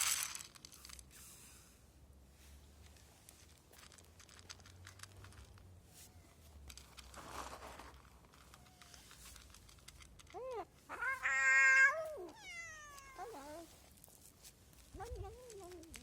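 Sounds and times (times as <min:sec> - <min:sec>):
faint clicking and crinkling: 0:02.4 - 0:16.0
cat meowing: 0:10.4 - 0:13.7.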